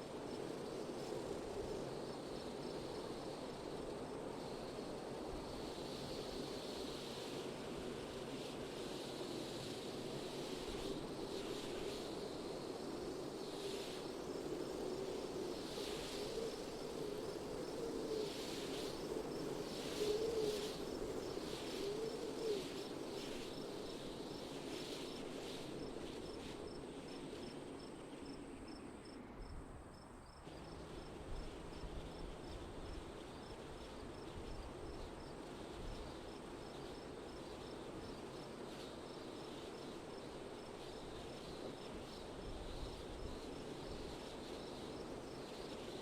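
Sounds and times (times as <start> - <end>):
wind: 0.0 - 46.0
cricket chirping: 11.3 - 46.0.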